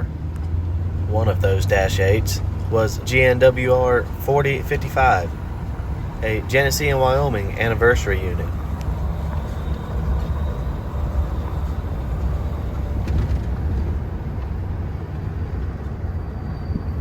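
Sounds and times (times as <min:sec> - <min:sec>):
diesel locomotive rumbling: 0:00.0 - 0:17.0.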